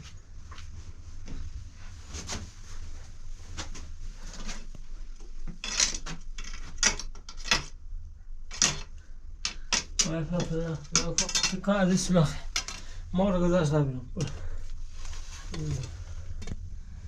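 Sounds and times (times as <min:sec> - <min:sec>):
hard objects clinking and knocking: 0:05.6 - 0:07.8, 0:08.5 - 0:11.7, 0:12.5 - 0:12.8
scraping: 0:14.2 - 0:16.6.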